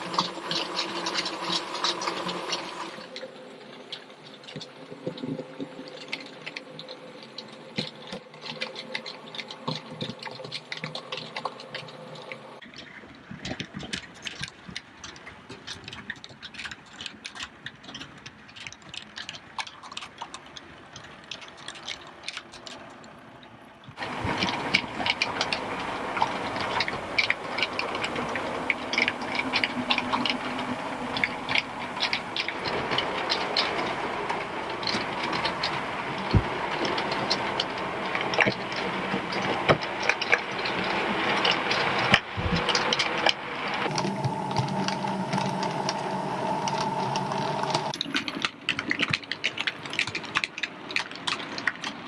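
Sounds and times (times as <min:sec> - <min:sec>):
model train motor hum: 0:00.0 - 0:03.7, 0:24.0 - 0:38.5, 0:42.7 - 0:48.4
wheels clicking over rail joints: 0:24.0 - 0:52.0.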